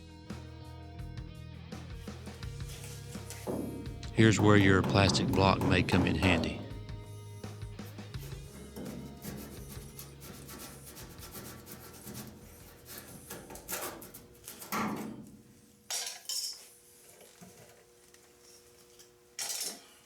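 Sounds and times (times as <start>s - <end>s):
louder knocks: 3.3s - 7.0s
mallet tapping plastic trim: 3.5s - 6.8s.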